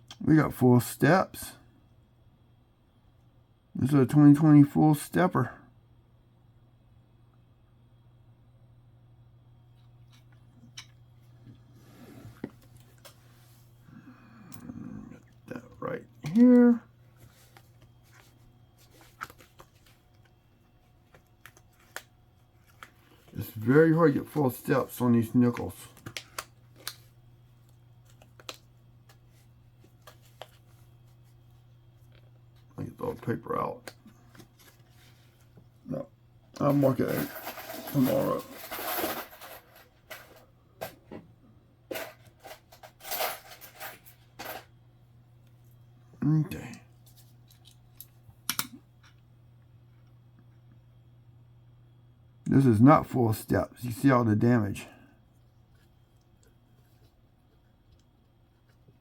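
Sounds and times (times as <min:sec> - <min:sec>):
low steady hum: 0:00.0 - 0:59.0
coins and paper handled: 0:36.6 - 0:40.4, 0:41.9 - 0:44.6.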